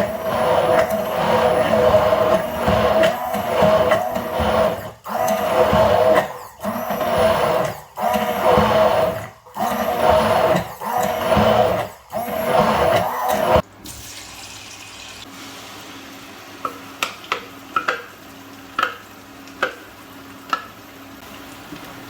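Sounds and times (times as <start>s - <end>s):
electric blender pulsing: 0.0s - 13.6s.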